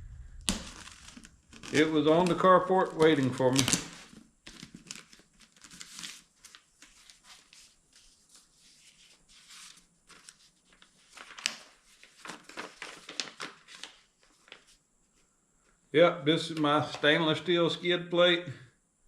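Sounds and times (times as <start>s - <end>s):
packaging rustling and tearing: 0.4s - 7.8s, 9.5s - 14.7s.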